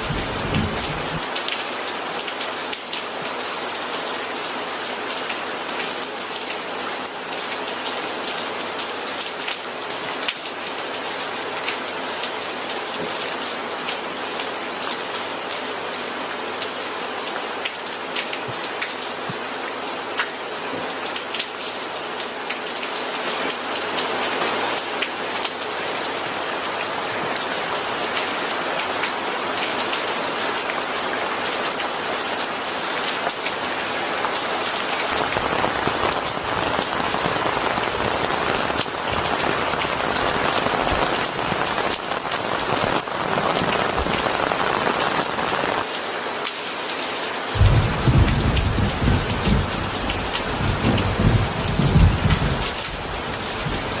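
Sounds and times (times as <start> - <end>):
thunder rumbling: 0.0 - 1.3, 35.1 - 45.8, 47.6 - 54.0
heavy rain pattering: 0.0 - 54.0.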